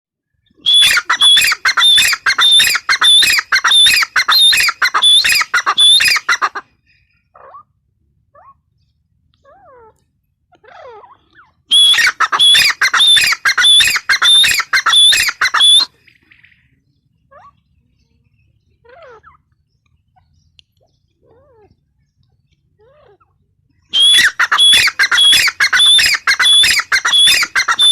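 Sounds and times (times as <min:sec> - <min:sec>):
francolin calling: 0:00.6 - 0:06.5, 0:11.7 - 0:16.2, 0:23.9 - 0:27.9.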